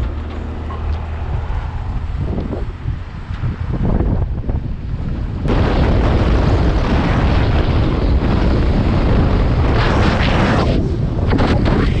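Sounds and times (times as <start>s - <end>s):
vehicle rumble at speed: 0.0s - 12.0s
wind buffeting microphone: 0.0s - 12.0s.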